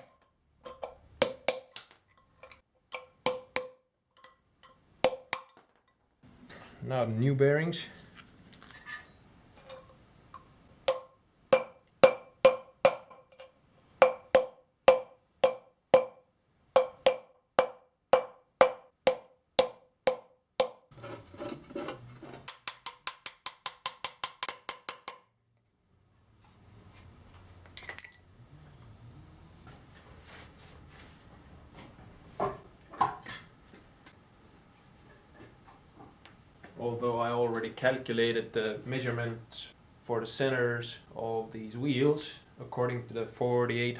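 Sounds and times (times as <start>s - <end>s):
hammer striking metal: 2.9s - 5.6s, 10.9s - 16.2s, 16.8s - 20.8s
metal clink: 27.8s - 28.3s.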